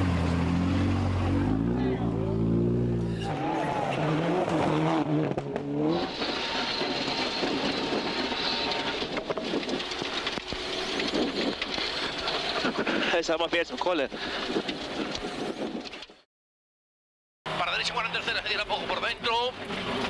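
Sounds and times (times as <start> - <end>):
car engine revving: 0.0 - 12.3
road noise: 0.0 - 16.2, 17.5 - 20.0.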